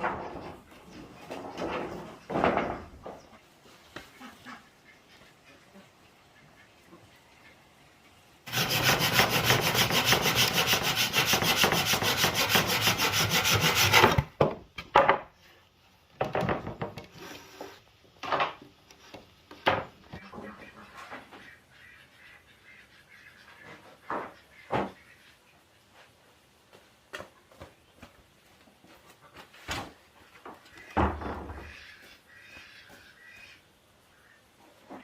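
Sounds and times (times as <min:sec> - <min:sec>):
tool rasping on wood: 0:08.5 - 0:14.3.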